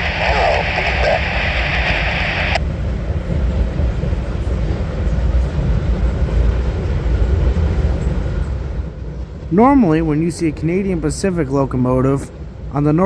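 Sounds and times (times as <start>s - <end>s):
radio static: 0.0s - 2.6s
freight train rumbling past: 0.0s - 13.0s.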